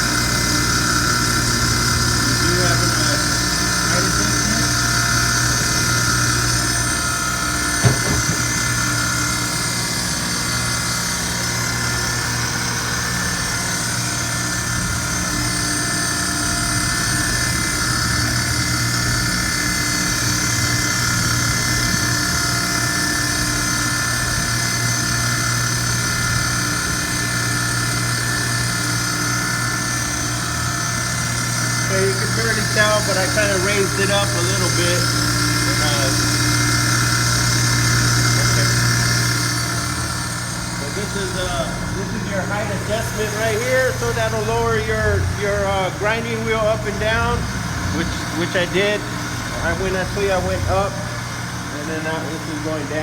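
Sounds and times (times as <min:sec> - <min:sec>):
tool grinder humming with high whine: 0:00.0 - 0:53.0
sharp knock: 0:07.8 - 0:08.5.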